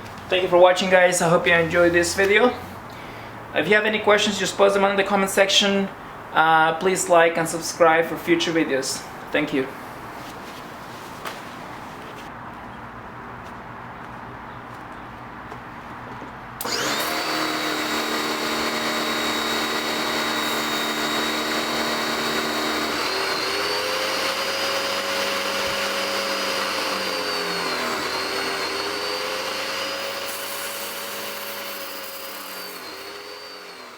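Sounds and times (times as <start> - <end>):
pressure washer motor whine: 16.6 - 31.4.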